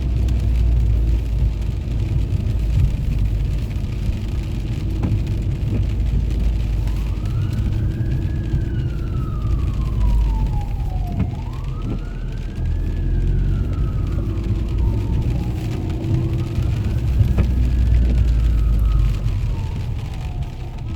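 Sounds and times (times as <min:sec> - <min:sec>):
low rumble: 0:00.0 - 0:20.9
siren wailing: 0:06.2 - 0:20.9.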